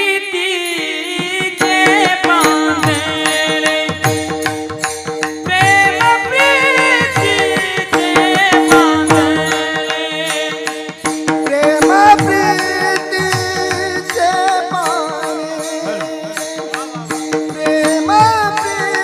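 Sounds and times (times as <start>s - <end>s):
drum beat: 1.6s - 19.0s
hand cymbals: 1.6s - 19.0s.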